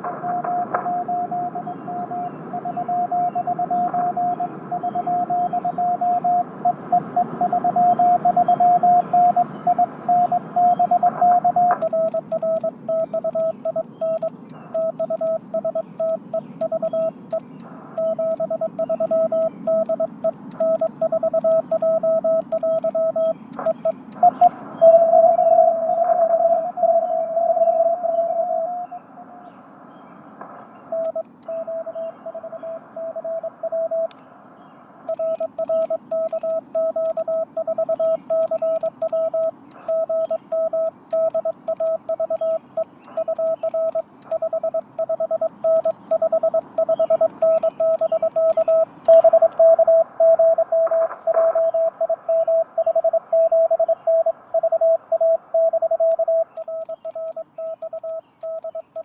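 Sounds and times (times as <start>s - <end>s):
morse code tone: 0.0s - 25.0s, 31.0s - 34.1s, 35.1s - 59.0s.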